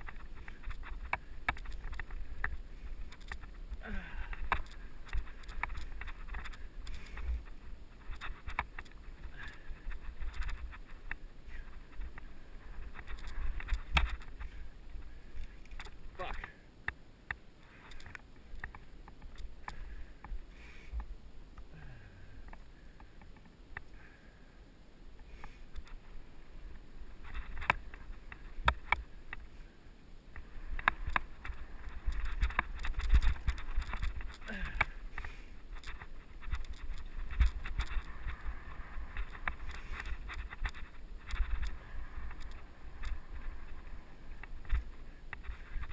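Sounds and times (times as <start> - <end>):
bike clicks and rattles: 0.0 - 16.6, 17.6 - 20.4, 27.1 - 29.5, 30.3 - 45.9
wind rumble on microphone: 30.4 - 45.9.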